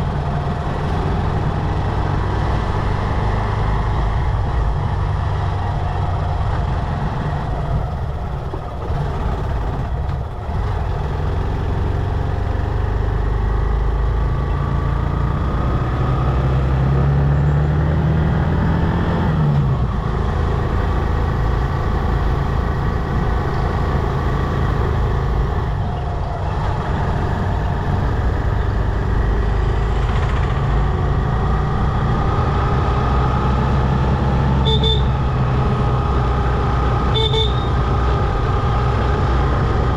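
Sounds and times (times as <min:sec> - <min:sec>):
road and wind noise: 0:00.0 - 0:39.9
motorcycle engine running: 0:03.9 - 0:15.6.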